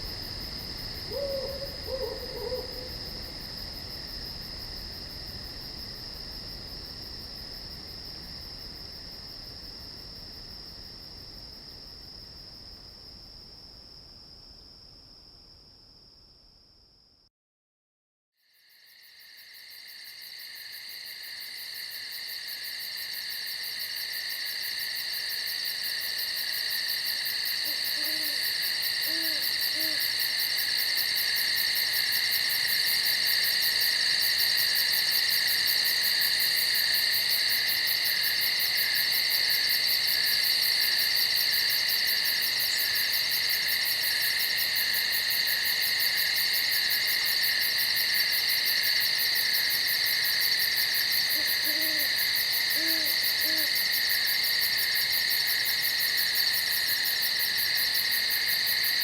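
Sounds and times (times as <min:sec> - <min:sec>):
insects buzzing trills: 0:00.0 - 0:08.1, 0:21.1 - 0:59.0
owl hooting softly: 0:01.0 - 0:03.1, 0:27.6 - 0:30.2, 0:51.3 - 0:53.8.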